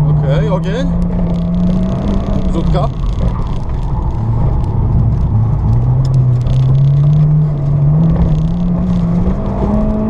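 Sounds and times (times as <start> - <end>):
car engine accelerating: 0.0 - 10.0.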